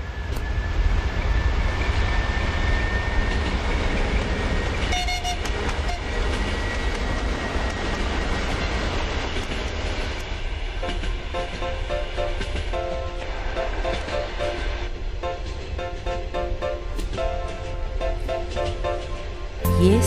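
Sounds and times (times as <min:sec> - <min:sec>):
train rumbling: 0:00.0 - 0:20.0
train horn toot: 0:04.9 - 0:06.2.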